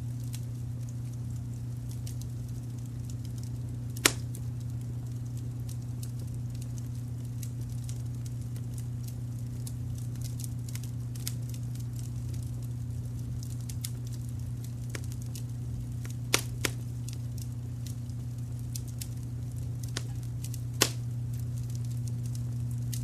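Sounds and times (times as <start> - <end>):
wood fire crackling: 0.0 - 23.0
loud sharp pop: 20.8 - 21.0.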